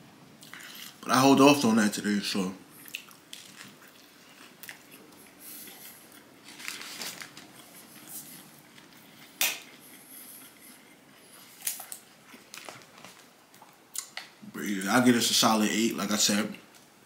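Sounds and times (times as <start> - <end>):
chewing crunchy food: 2.7 - 14.4
faint crinkling: 2.7 - 14.4.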